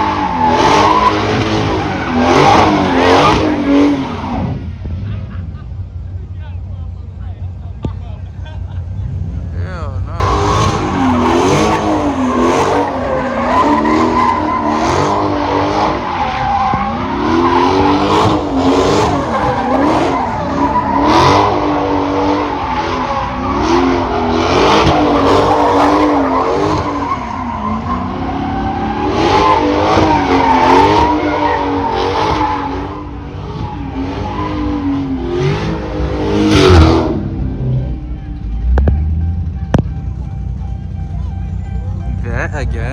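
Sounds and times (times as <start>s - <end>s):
tyres squealing on pavement: 0.0s - 4.4s, 10.2s - 36.8s
car engine revving: 0.0s - 42.9s.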